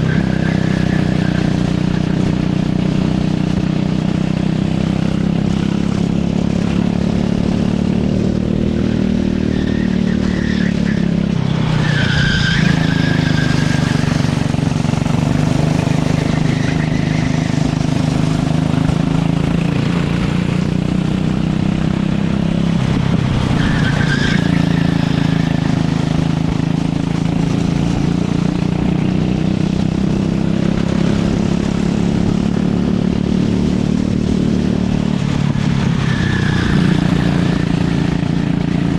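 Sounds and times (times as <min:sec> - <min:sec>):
tyre squeal: 0:00.0 - 0:02.4, 0:08.7 - 0:19.4, 0:23.4 - 0:26.4, 0:35.5 - 0:38.9
kart engine running hard: 0:00.0 - 0:38.9.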